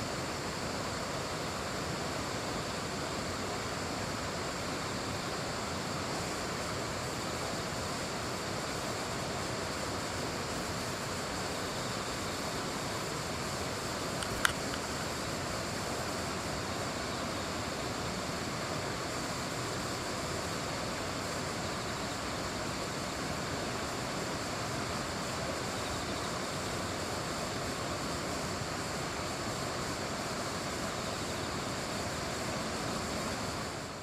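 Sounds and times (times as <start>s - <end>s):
sharp click: 14.2s - 14.9s.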